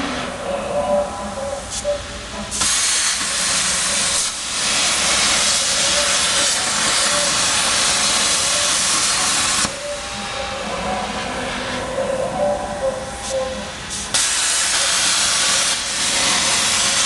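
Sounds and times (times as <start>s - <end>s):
machine hum: 0.0s - 17.0s
plasma cutting torch hissing: 2.5s - 10.3s, 13.9s - 17.0s.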